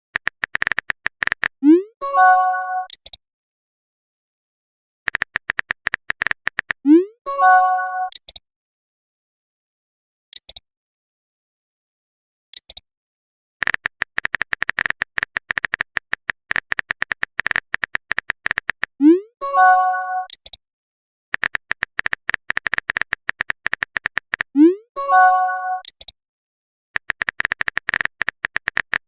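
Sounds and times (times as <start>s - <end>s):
typing clicks: 0.2s - 1.6s, 5.1s - 6.8s, 13.6s - 19.0s, 21.4s - 24.6s, 25.8s - 26.2s, 27.0s - 29.0s
message chime: 1.8s - 2.9s, 7.3s - 8.1s, 19.4s - 20.3s, 24.7s - 25.8s.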